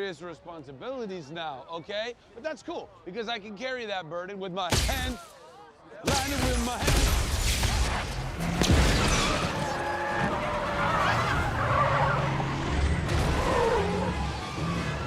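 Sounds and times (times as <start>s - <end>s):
car engine and road noise: 7.9s - 15.0s
car tyres screeching: 7.9s - 15.0s.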